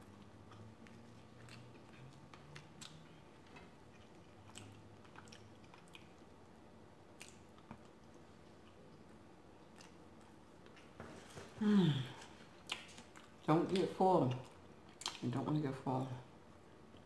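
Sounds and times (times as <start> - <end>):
chewing with wet mouth clicks: 0.1 - 6.4, 7.1 - 10.9, 12.6 - 15.3.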